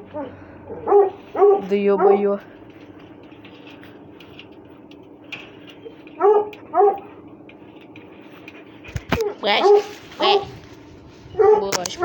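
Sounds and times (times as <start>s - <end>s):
faint steady hum: 0.0s - 12.0s
dog yelping barks: 0.1s - 2.3s, 6.2s - 7.2s, 9.2s - 10.5s, 11.4s - 11.7s.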